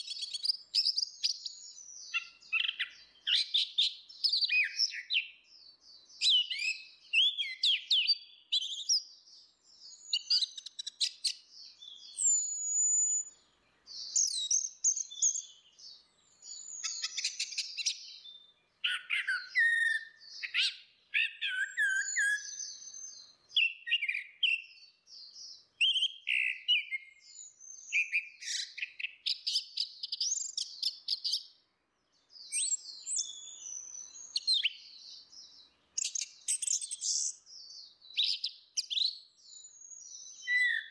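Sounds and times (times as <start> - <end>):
thrush singing whistled phrases: 6.2 - 9.0, 9.9 - 13.3, 16.6 - 22.9, 25.8 - 31.4, 32.5 - 35.0, 40.0 - 40.9.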